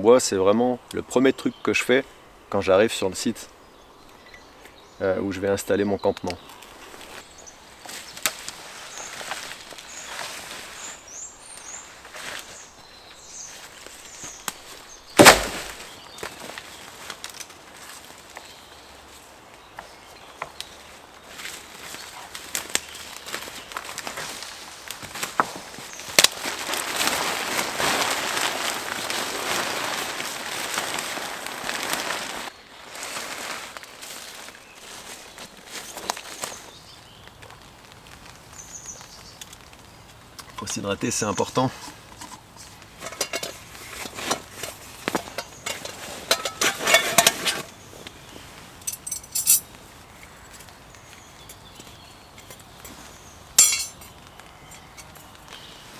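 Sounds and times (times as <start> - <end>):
crackly rustling: 2.6 - 55.9
hard objects clinking and knocking: 53.6 - 54.1.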